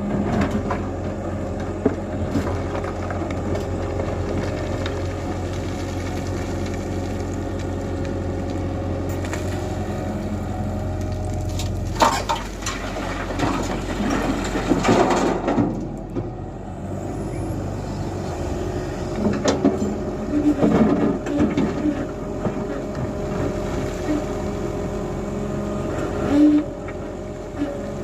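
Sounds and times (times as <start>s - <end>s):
excavator engine running: 0.0s - 28.0s
bucket clattering and crunching: 11.2s - 16.2s.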